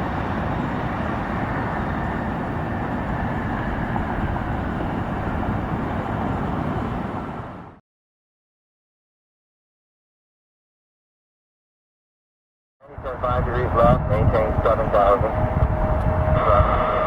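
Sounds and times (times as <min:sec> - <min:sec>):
jet aircraft engine noise: 0:00.0 - 0:07.8, 0:12.9 - 0:17.0.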